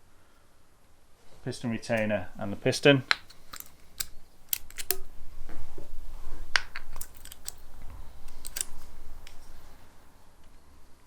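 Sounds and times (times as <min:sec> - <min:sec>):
light metallic clicks of pump parts: 0:03.1 - 0:05.0, 0:06.8 - 0:09.5.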